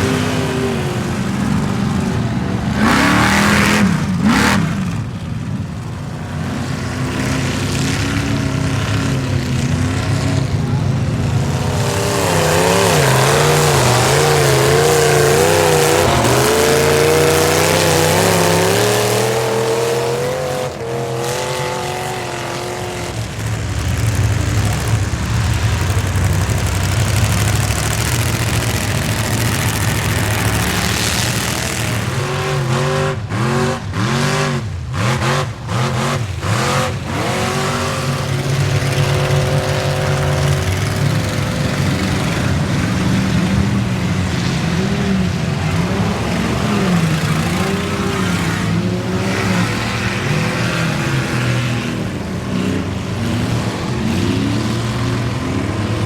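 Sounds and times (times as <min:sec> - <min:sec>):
truck engine revving hard: 0:00.0 - 0:56.0.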